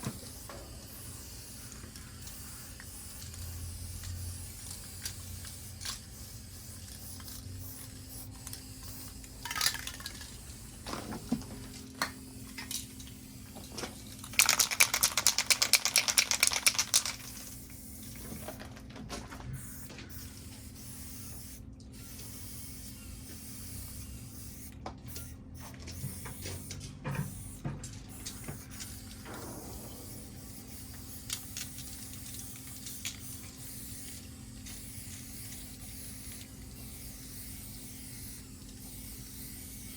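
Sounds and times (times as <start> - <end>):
spray can mixing ball rattling: 0.0 - 10.8, 11.6 - 18.2, 28.2 - 39.9
spray paint can hissing: 0.0 - 18.3, 19.6 - 26.7, 27.3 - 39.9.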